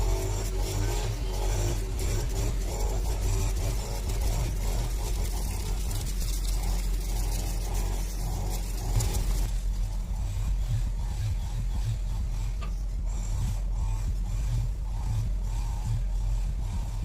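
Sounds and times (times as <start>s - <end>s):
grass cutter engine running: 0.0s - 17.0s.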